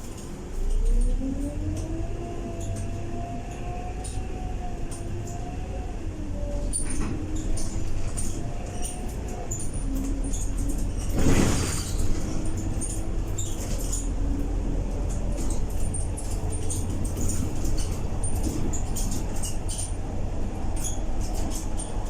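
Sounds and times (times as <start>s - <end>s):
bus engine rumble: 0.0s - 22.0s
light rattles and clicks: 6.8s - 22.0s.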